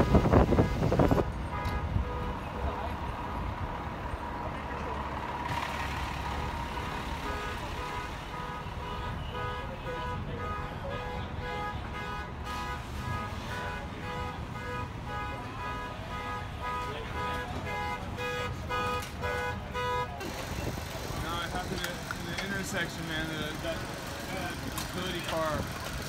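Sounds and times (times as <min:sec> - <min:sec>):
street noise: 0:00.0 - 0:26.0
vehicle engine running: 0:02.5 - 0:08.6.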